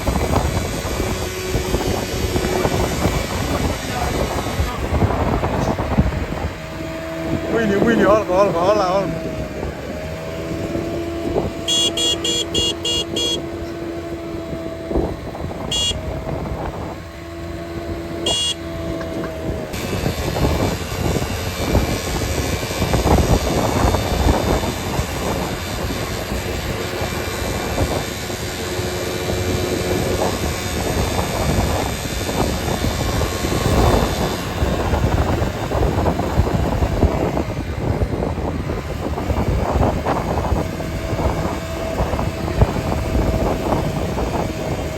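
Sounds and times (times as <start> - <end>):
road and rain noise: 0.0 - 44.9
vehicle horn blasts: 11.4 - 14.0, 15.6 - 16.4, 18.2 - 19.0.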